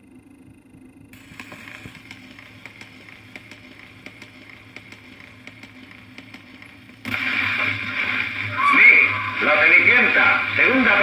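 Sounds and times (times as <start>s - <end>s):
low hum: 0.0s - 11.0s
faint high whine: 7.1s - 11.0s.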